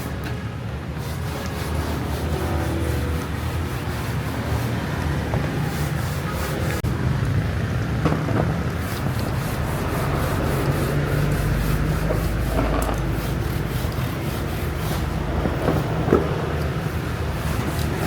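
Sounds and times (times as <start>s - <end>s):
abrasive rubbing: 8.8s - 18.0s.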